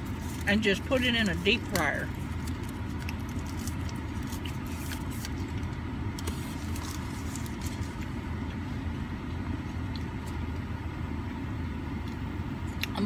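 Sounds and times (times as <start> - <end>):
food packaging crinkling: 0.0 - 8.2
car idling: 0.0 - 13.0.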